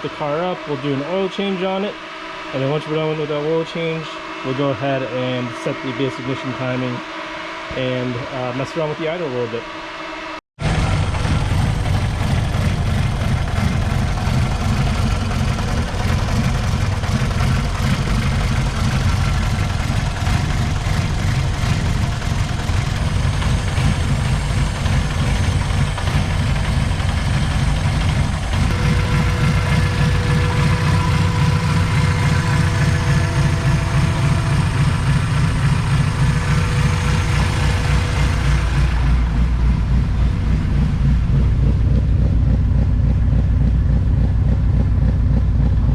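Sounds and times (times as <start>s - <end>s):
four-cylinder engine idling: 10.6s - 45.9s.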